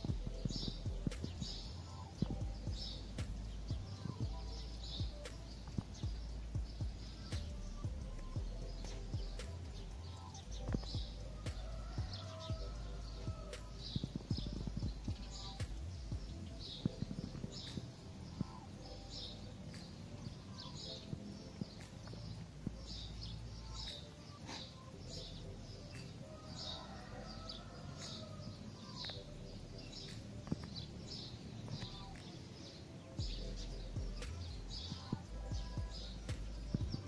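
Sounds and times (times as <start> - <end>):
wind rumble on microphone: 0.0 - 23.8
small birds chirping: 0.0 - 37.0.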